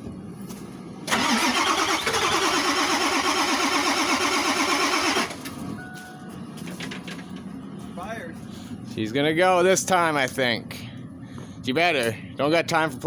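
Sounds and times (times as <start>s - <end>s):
engine starter cranking: 1.1s - 5.6s.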